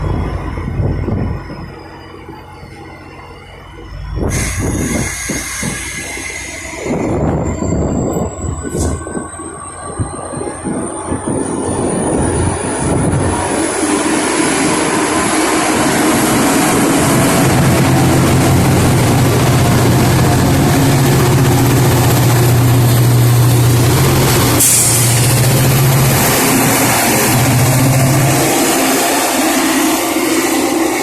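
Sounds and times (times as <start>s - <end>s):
diesel locomotive engine drone: 0.0s - 31.0s
air release hiss: 4.3s - 7.1s, 24.5s - 25.5s.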